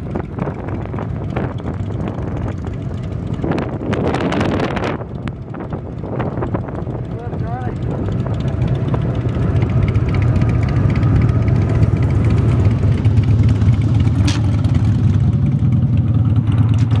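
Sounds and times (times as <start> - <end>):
motorcycles idling: 0.0 - 17.0.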